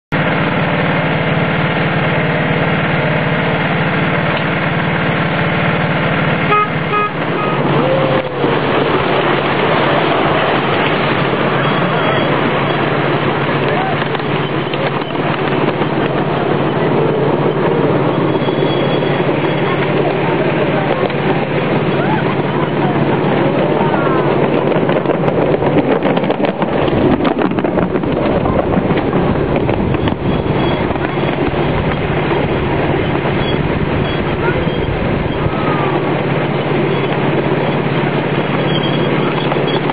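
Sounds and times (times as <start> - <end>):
miniature train locomotive drone: 0.1 - 39.9
wind buffeting microphone: 0.1 - 39.9
train horn toots: 6.4 - 8.5.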